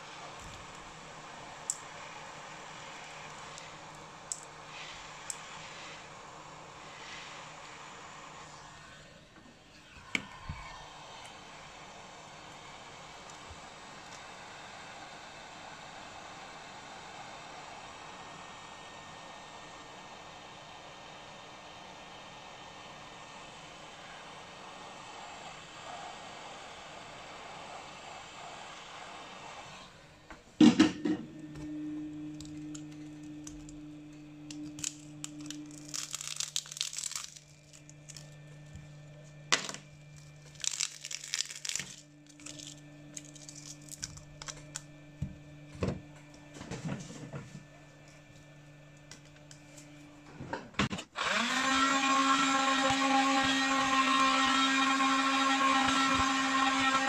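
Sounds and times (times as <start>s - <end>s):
low steady hum: 30.7s - 50.6s
small electric motor tool running: 34.5s - 38.9s, 39.6s - 44.8s, 51.2s - 57.0s.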